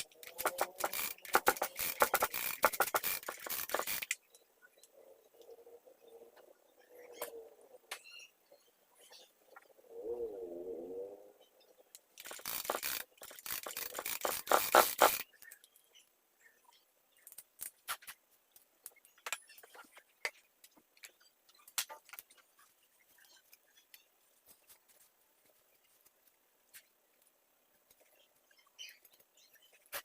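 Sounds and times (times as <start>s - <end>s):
small parts and tools clicking: 0.0s - 5.6s, 11.9s - 16.0s, 17.2s - 24.1s
scraping and brushing: 12.2s - 15.2s.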